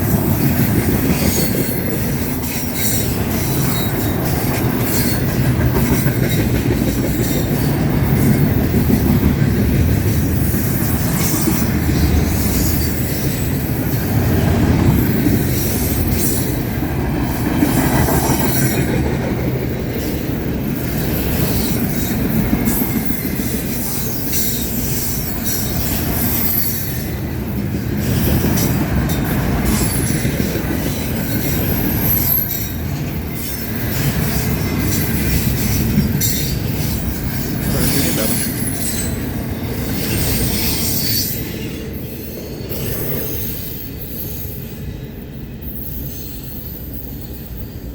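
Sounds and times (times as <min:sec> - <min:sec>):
wheels clicking over rail joints: 0:00.0 - 0:44.6
train cars rumbling past: 0:00.0 - 0:47.9
faint high wheel squeals: 0:28.2 - 0:47.9.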